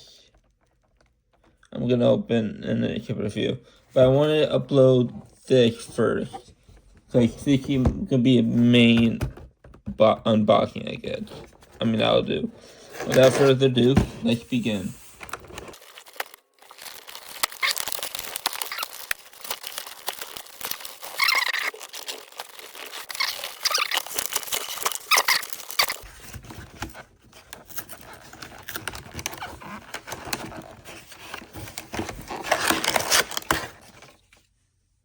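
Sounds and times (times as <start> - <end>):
cardboard rustling: 3.9 - 34.5
plastic wrap crinkling and tearing: 14.6 - 34.0.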